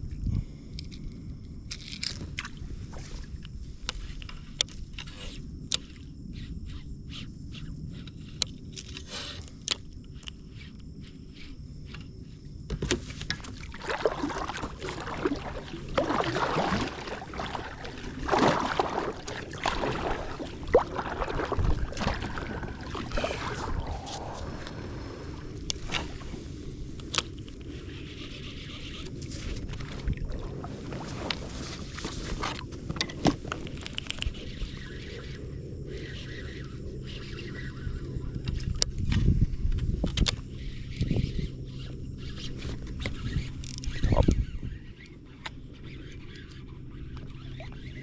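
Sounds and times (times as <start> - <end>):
water sloshing and splashing: 2.0 - 5.0, 12.8 - 39.2, 42.2 - 48.0.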